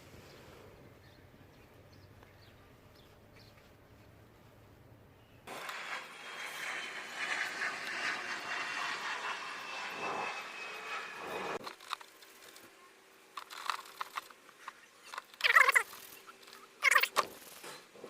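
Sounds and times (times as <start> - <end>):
distant engine whine: 5.4 - 14.2
crackling rustle: 5.5 - 18.0
small clicks: 13.4 - 17.7.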